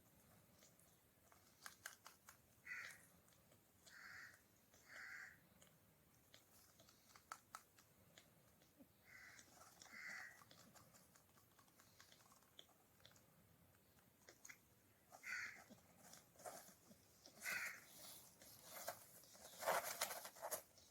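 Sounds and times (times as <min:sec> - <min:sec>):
parrot chicks squawking: 0:15.2 - 0:15.6, 0:17.4 - 0:18.1.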